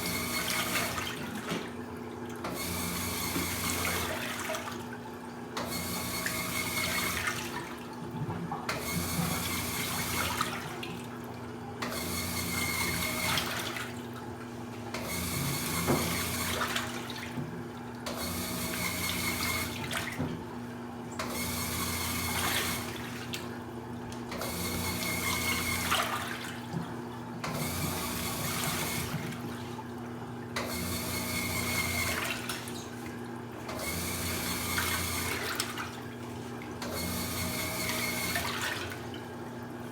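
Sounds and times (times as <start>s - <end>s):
water sloshing in washing machine: 0.0s - 39.9s.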